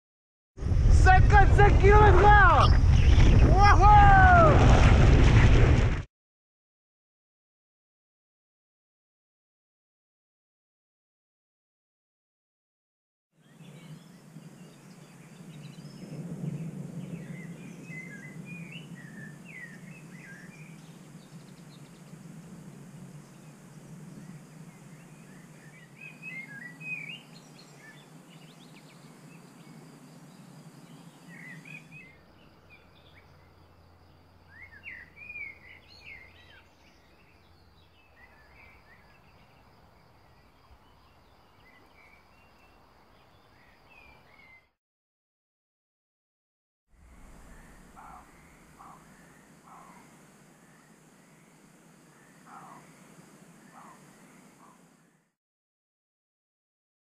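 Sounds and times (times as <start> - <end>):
small birds chirping: 13.4 - 44.7, 47.3 - 55.3.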